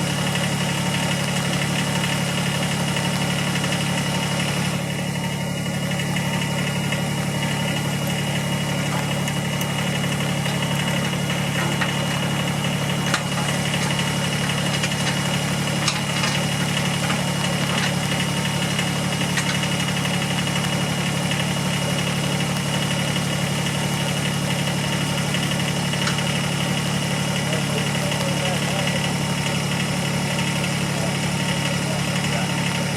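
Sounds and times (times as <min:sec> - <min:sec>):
tractor diesel engine running: 0:00.0 - 0:32.9
sharp clicks or knocks: 0:13.0 - 0:18.0.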